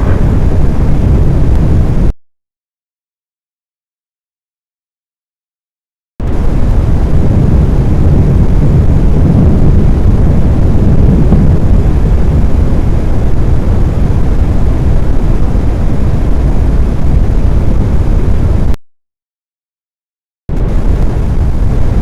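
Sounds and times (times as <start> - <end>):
low rumbling roar: 0.0 - 2.1, 6.2 - 18.8, 20.5 - 22.0.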